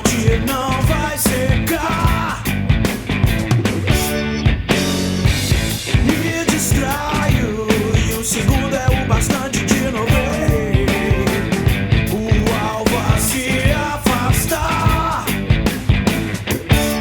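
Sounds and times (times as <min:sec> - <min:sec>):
person singing: 0:00.0 - 0:02.5, 0:06.0 - 0:15.4
rock song with drums and guitar: 0:00.0 - 0:17.0.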